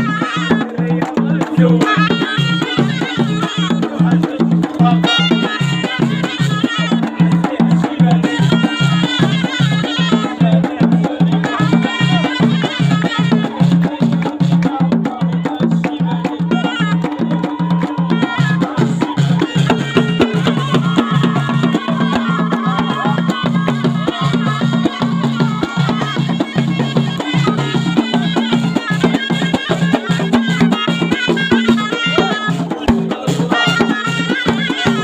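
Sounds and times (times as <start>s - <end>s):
double-reed shawm melody: 0.0s - 35.0s
steady drum beat: 0.0s - 35.0s.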